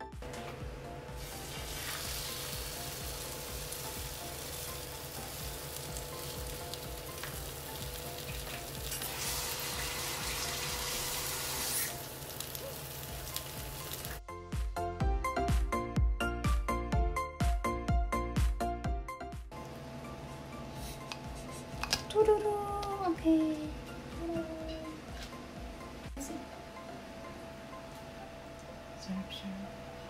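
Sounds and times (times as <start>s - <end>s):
music: 0.0s - 30.0s
toast sizzling in hot oil: 1.2s - 14.2s.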